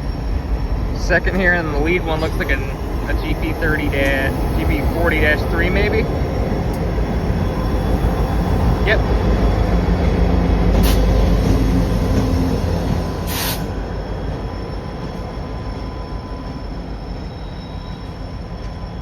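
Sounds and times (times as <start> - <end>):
diesel locomotives passing: 0.0 - 19.0.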